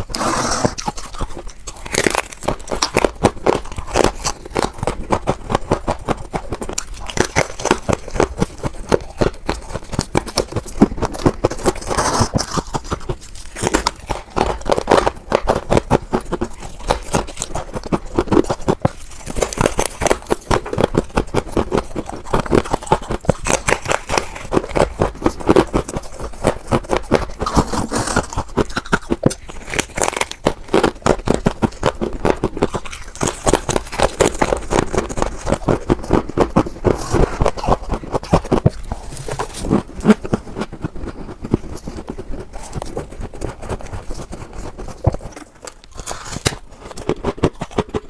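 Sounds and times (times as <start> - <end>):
chewing crunchy ice: 0.0 - 48.0.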